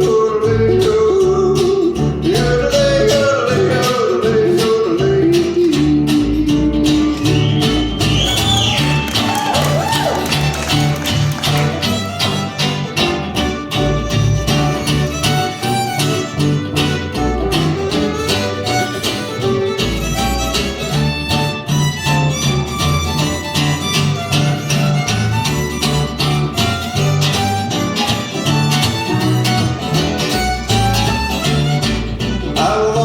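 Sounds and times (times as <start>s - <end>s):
strummed rhythm guitar: 0.0s - 33.0s
walking bass: 0.0s - 33.0s
fiddle melody: 6.4s - 33.0s.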